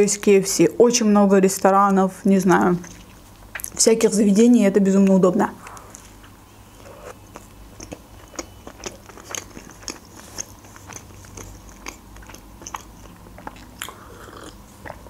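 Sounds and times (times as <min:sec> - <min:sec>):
chewing food: 0:02.6 - 0:03.8, 0:05.9 - 0:15.0.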